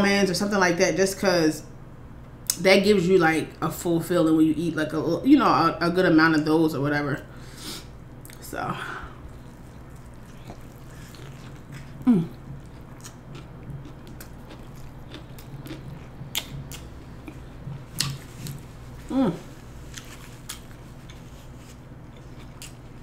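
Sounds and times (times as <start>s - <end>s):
chewing food: 9.2s - 23.0s
person humming: 12.0s - 12.4s, 19.0s - 19.6s
wet mouth clicks: 14.1s - 17.4s.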